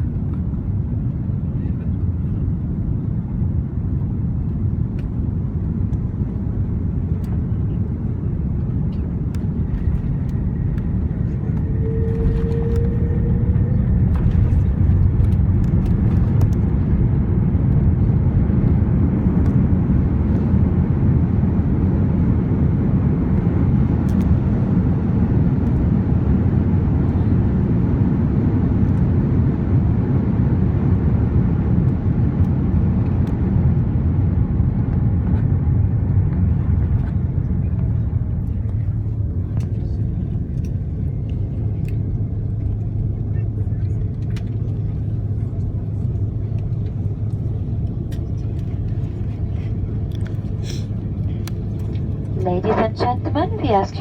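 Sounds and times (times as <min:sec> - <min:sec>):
airplane cabin rumble: 0:00.0 - 0:54.0
brief hum: 0:11.2 - 0:15.0.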